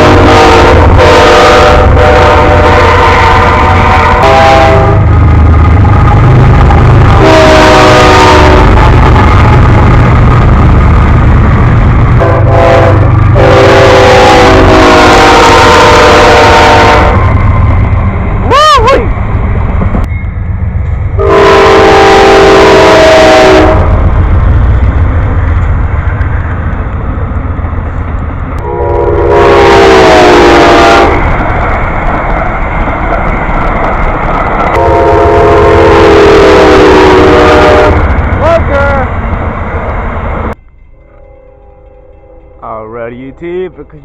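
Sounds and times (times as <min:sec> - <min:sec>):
locomotive air horn blasts: 0:00.0 - 0:05.1, 0:07.1 - 0:08.8, 0:12.2 - 0:17.4, 0:21.2 - 0:24.0, 0:28.6 - 0:31.2, 0:34.7 - 0:38.1
passing train rumble: 0:00.0 - 0:44.0.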